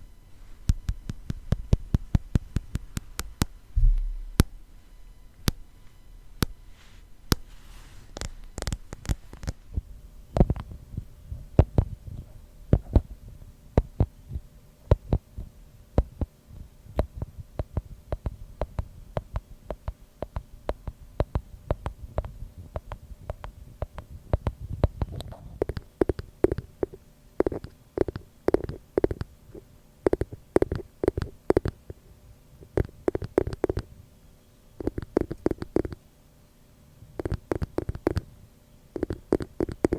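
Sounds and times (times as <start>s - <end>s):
fingers tapping glass: 39.0s - 39.9s.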